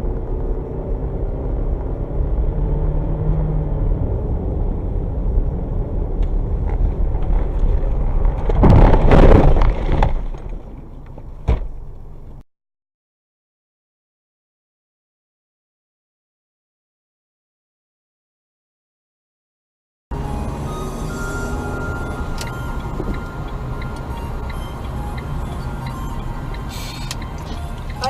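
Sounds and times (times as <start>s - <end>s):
vehicle engine and road noise: 0.0s - 12.4s, 20.1s - 28.0s
loud vehicle crash: 6.8s - 10.8s.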